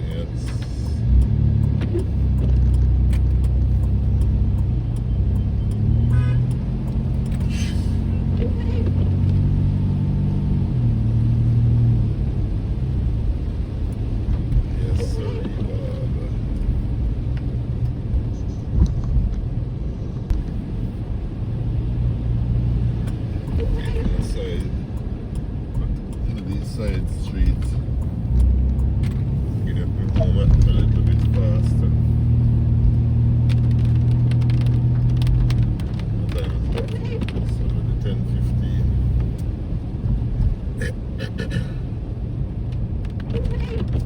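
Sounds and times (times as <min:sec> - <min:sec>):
car engine and road rumble: 0:00.0 - 0:44.0
faint clicks: 0:23.0 - 0:29.4.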